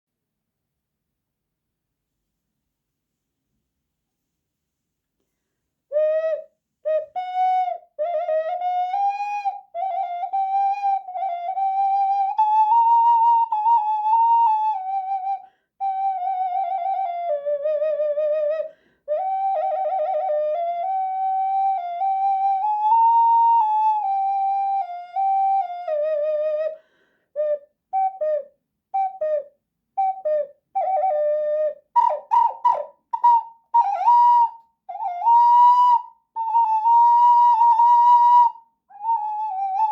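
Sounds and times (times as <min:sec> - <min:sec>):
ocarina melody: 0:05.9 - 0:26.8, 0:27.4 - 0:39.9
player breathing: 0:26.8 - 0:27.3.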